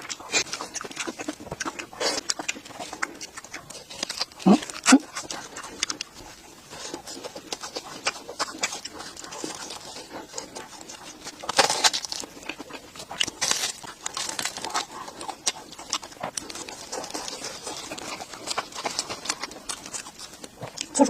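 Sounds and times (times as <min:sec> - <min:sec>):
wet mouth clicks: 0:00.0 - 0:06.3
crunchy chewing: 0:00.0 - 0:21.0.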